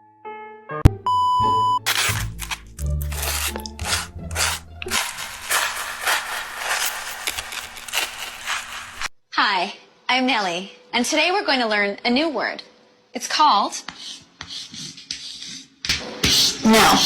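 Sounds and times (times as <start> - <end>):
short electronic beep: 1.0 - 1.8
crunchy chewing and biting: 1.9 - 9.1.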